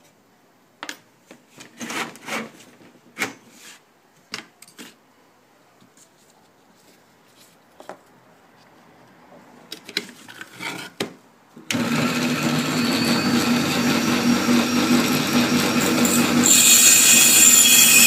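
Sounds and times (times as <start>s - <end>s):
small electric machine humming: 11.7s - 18.0s.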